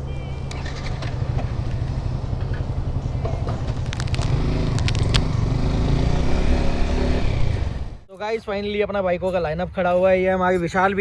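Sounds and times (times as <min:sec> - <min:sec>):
motorcycle engine rumbling: 0:00.0 - 0:08.1
sharp clicks: 0:00.4 - 0:06.5.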